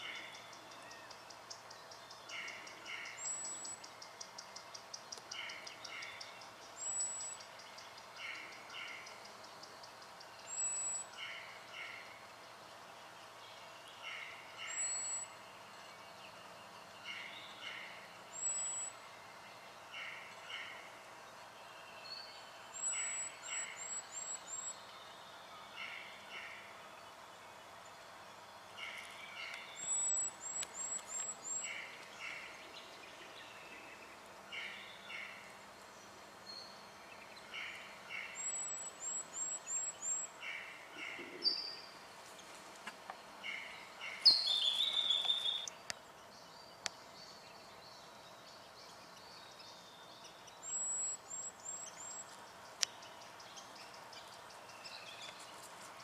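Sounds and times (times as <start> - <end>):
lower whistled bird notes: 44.2 - 45.7.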